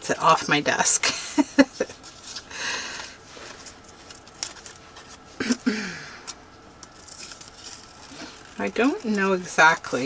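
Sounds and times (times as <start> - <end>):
paper rustling: 1.8 - 5.3.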